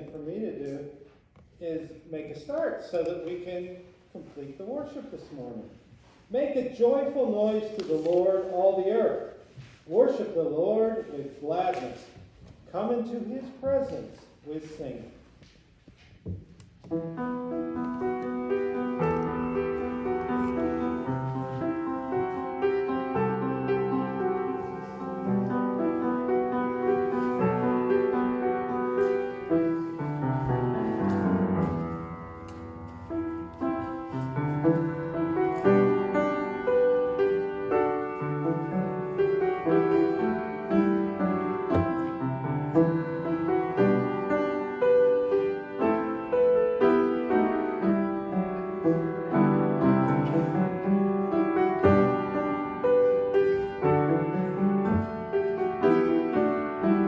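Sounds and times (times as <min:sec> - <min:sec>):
slow piano piece: 0:16.0 - 0:57.0.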